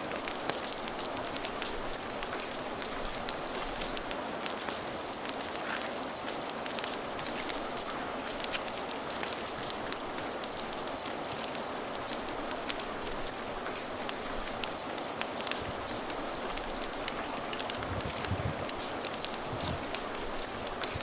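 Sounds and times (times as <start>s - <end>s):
sharp ticks and crackles: 0.0s - 21.0s
steady rain hiss: 0.0s - 21.0s.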